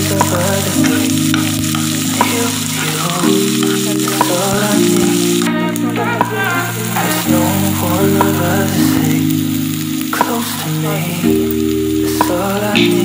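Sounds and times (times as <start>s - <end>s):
onions sizzling in oil: 0.0s - 13.0s
soft background music: 0.0s - 13.0s
spatula stirring and scraping pan: 0.2s - 7.4s.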